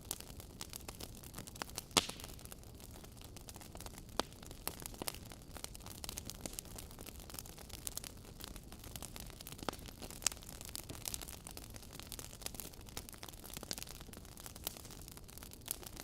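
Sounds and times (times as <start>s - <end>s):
wood fire crackling: 0.0s - 16.0s
sharp pops from logs: 2.0s - 2.4s.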